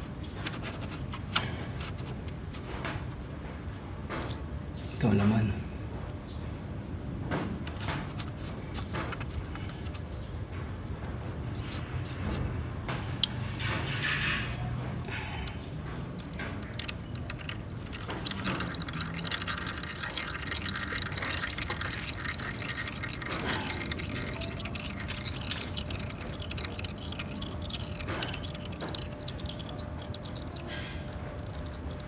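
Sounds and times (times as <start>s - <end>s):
oil trickling and dripping: 7.3s - 32.0s.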